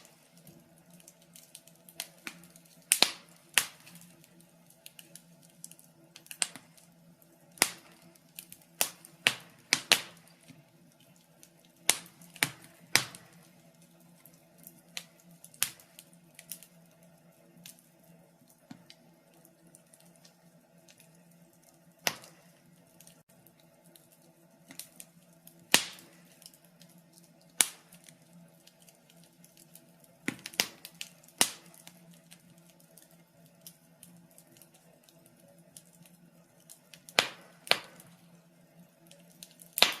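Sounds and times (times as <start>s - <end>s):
faint steady hum: 0.0s - 40.0s
wood fire crackling: 0.0s - 40.0s.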